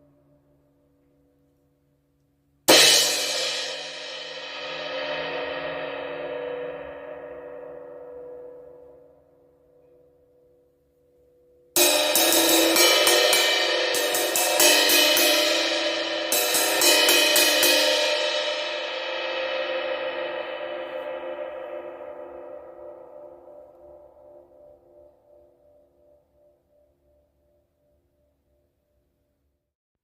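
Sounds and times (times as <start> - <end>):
crash cymbal struck: 2.7 - 9.0, 11.8 - 25.1.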